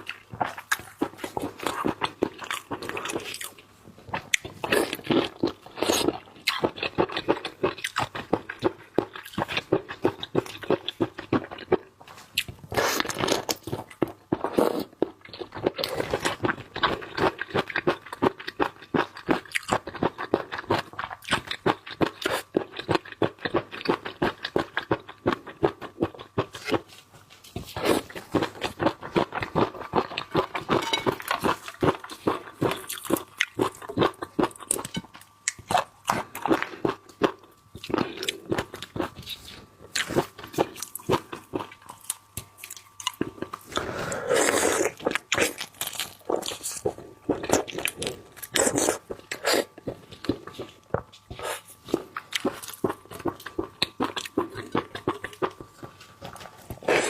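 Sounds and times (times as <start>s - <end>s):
wet chewing and crunching: 0.0s - 57.0s.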